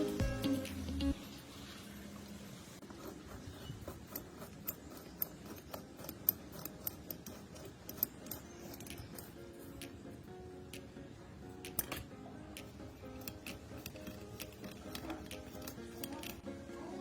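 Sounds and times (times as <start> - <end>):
small metal parts clicking: 3.3 - 10.1, 11.6 - 16.4.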